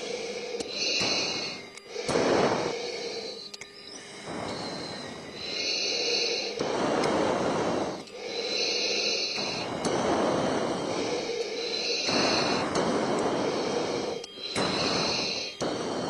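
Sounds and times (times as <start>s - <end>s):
breathing through oxygen mask: 0.0s - 16.0s.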